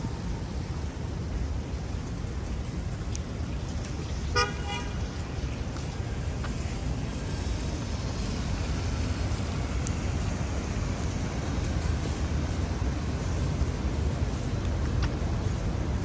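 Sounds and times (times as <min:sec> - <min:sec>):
street and traffic noise: 0:00.0 - 0:16.0
car horn toot: 0:04.3 - 0:05.0.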